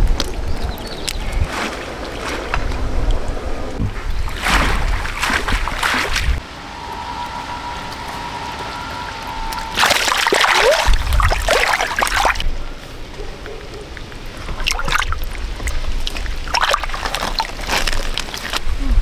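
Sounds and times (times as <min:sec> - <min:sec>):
water splashing and sloshing: 0:00.0 - 0:19.0.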